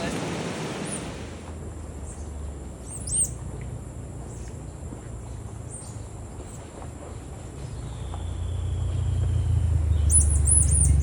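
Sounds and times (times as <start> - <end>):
small birds chirping: 2.0 - 3.4, 4.2 - 11.0.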